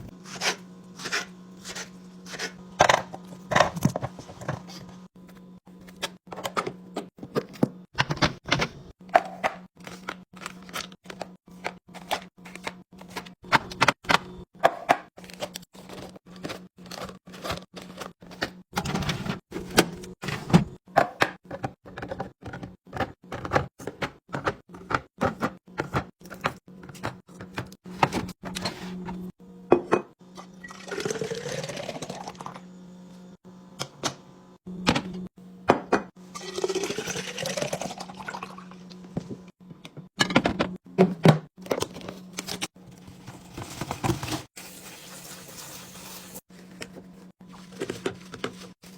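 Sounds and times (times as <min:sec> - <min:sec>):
containers handled and set down: 0:38.9 - 0:44.5, 0:46.7 - 0:48.9.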